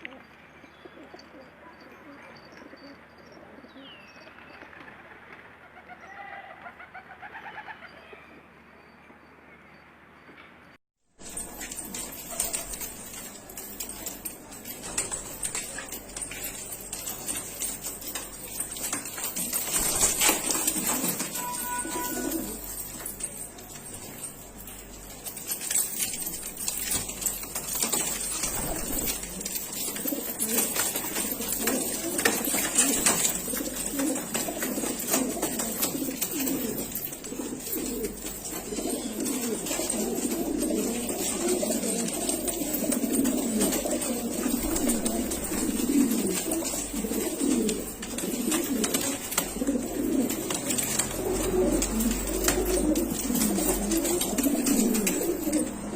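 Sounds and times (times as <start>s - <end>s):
pigeons cooing: 11.4s - 55.9s.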